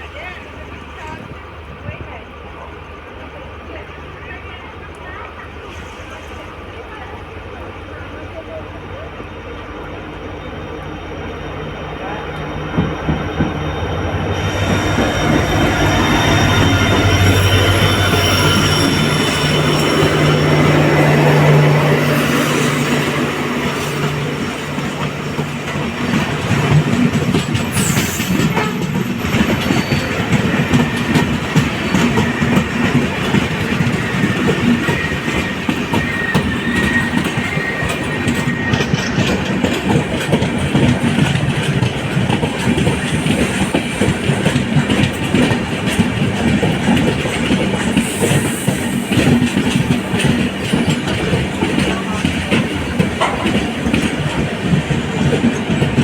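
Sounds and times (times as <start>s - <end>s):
train wheels clattering on rails: 0.0s - 56.0s
high wheel squeal: 9.6s - 40.0s, 42.4s - 45.7s, 46.3s - 54.4s.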